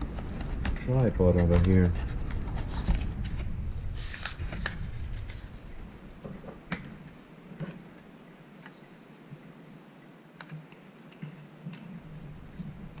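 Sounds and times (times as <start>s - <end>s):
packaging rustling: 0.0s - 8.8s.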